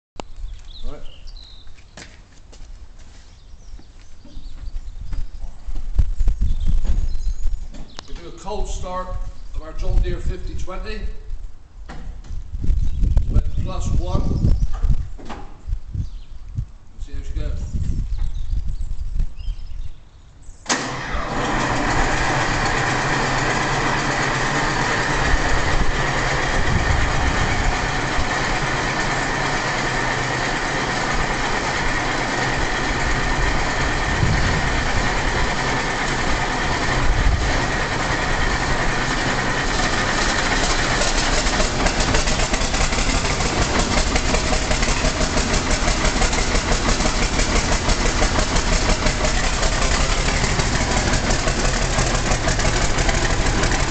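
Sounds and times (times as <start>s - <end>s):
diesel engine starting and running: 6.8s - 12.4s, 20.5s - 53.9s.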